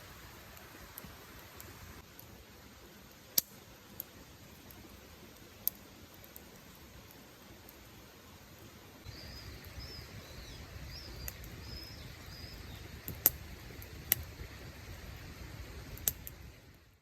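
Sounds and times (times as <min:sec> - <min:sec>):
outdoor background noise: 0:00.0 - 0:17.0
small bird chirping: 0:09.0 - 0:13.3.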